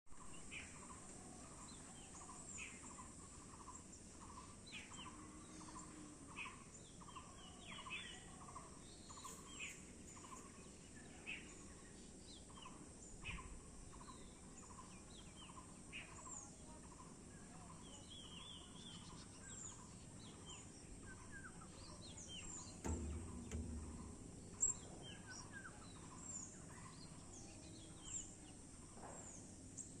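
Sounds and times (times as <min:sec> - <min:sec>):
small birds chirping: 0:00.2 - 0:30.0
sharp click: 0:22.8 - 0:24.9.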